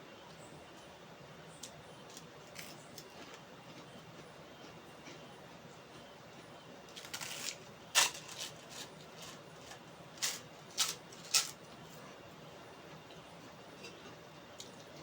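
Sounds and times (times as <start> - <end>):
eating clicks and crunches: 1.6 - 4.3, 6.9 - 11.8.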